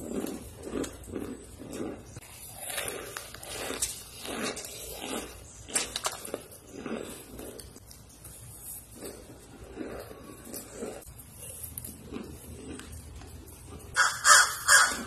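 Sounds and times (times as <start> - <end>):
crisp crunches: 0.0 - 11.0
chewing mouth sounds: 0.0 - 14.1.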